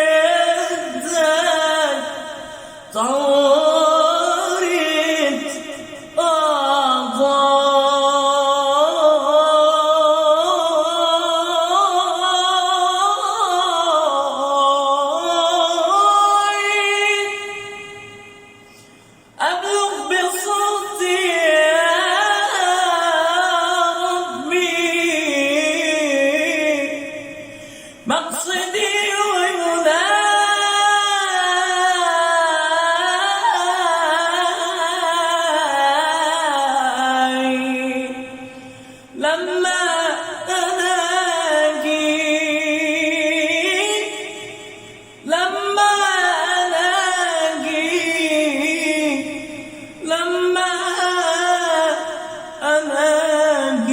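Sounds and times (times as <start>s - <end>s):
man singing long vocal line: 0.0s - 18.3s, 19.4s - 53.9s.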